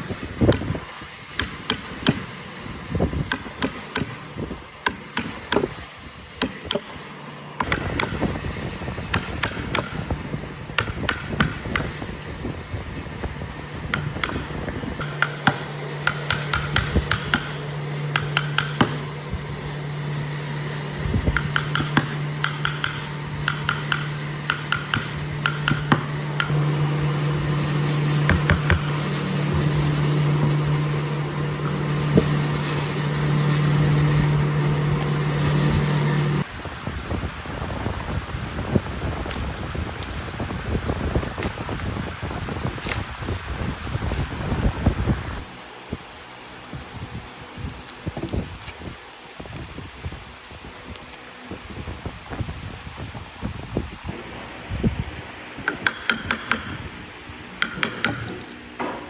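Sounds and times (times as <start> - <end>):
machine motor hum: 6.6 - 37.0.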